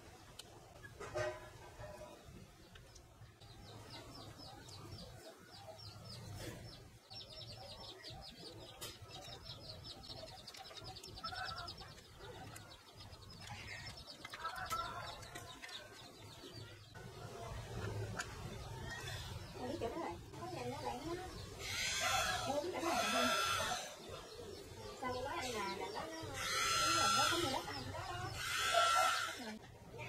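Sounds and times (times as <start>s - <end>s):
low clucking bird calls: 0.3s - 30.0s
bird trilling: 21.6s - 24.0s, 25.4s - 29.6s.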